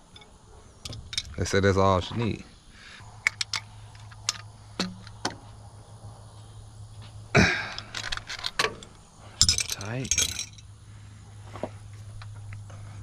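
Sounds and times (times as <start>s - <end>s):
steady low hum: 0.0s - 13.0s
man clearing throat: 7.4s - 7.8s.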